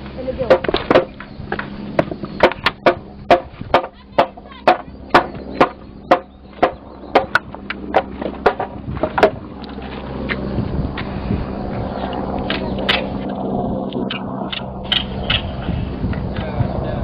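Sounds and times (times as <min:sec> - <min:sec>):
sharp ringing knocks: 0:00.4 - 0:09.4.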